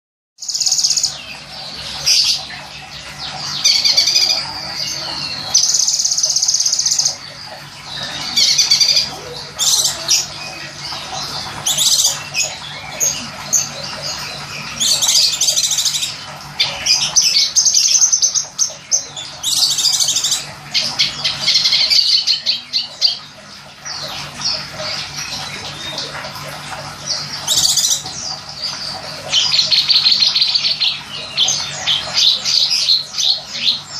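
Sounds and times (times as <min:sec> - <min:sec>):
running water: 0:00.4 - 0:33.9.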